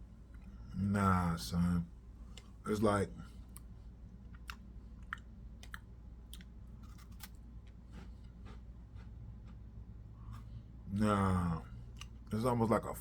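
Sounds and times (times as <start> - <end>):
person chewing cracker: 3.4 - 10.6, 11.6 - 12.4.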